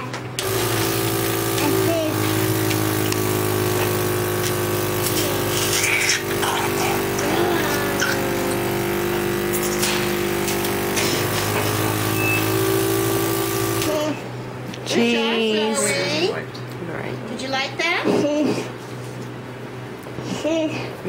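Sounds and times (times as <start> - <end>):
suction machine motor hum: 0.4 - 14.4.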